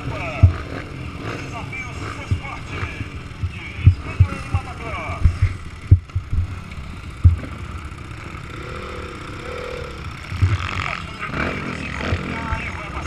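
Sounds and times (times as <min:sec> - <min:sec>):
motocross bike engine revving: 0:00.0 - 0:13.0
short low thumps: 0:00.4 - 0:00.7, 0:02.3 - 0:02.6, 0:03.4 - 0:07.6, 0:10.3 - 0:10.7.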